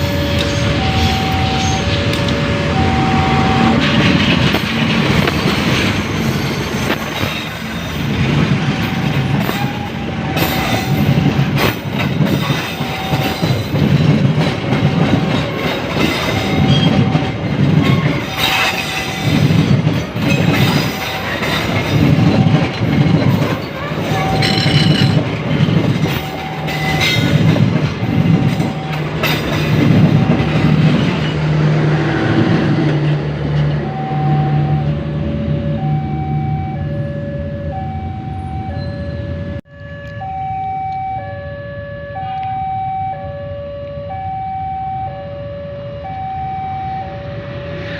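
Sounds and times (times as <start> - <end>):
crossing warning bell ringing: 0.0 - 47.9
train wheels clacking: 3.4 - 33.8.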